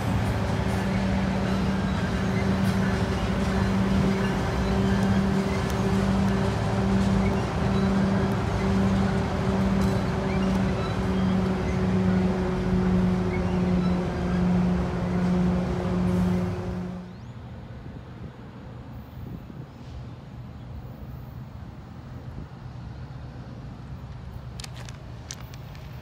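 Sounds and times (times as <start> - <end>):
freight train rolling past: 0.0 - 19.2
open air: 0.0 - 26.0.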